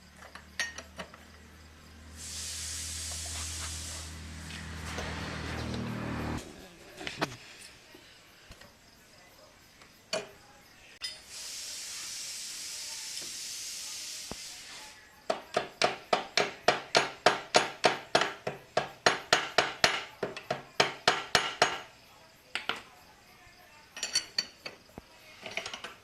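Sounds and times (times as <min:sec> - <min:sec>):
steady hiss: 0:01.9 - 0:05.4, 0:11.0 - 0:15.1.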